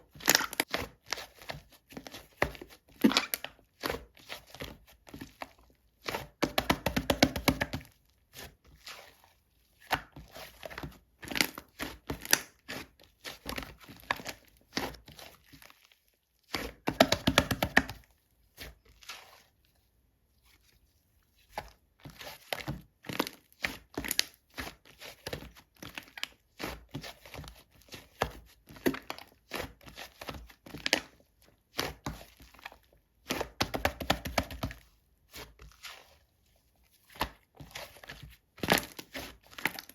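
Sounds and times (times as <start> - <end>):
slime squished by hand: 0.1 - 19.7.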